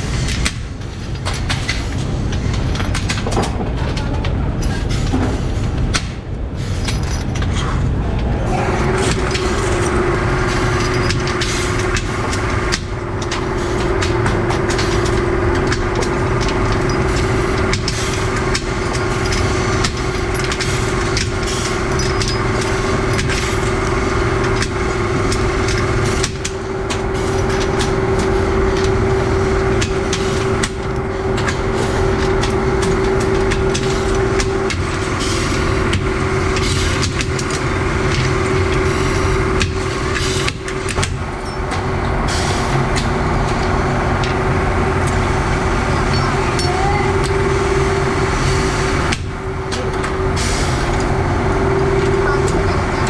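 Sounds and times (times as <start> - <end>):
workshop machinery humming: 0.0 - 53.0.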